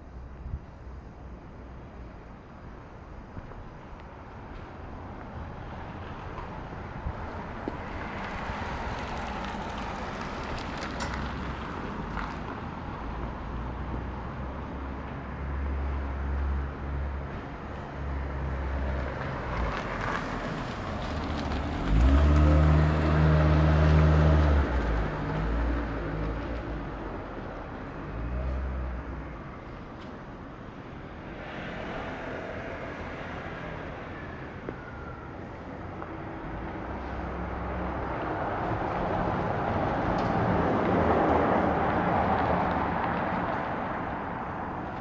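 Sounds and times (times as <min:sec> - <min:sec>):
cars passing: 0:01.8 - 0:45.0
vehicle engine running close by: 0:17.3 - 0:29.4.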